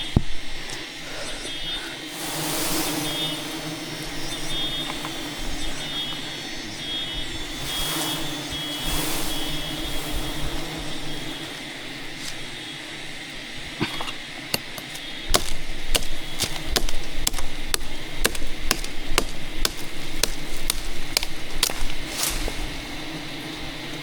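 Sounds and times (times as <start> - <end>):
tool striking hard blows: 14.5 - 22.4.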